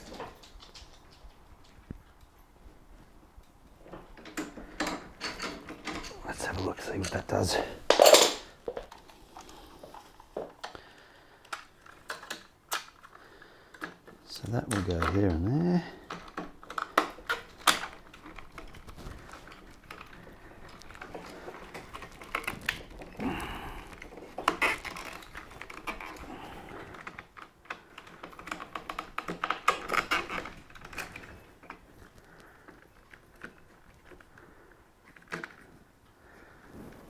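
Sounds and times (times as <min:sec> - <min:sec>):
plastic and metal parts clicking: 0:11.4 - 0:15.4, 0:16.0 - 0:23.1
rustling: 0:29.7 - 0:37.0.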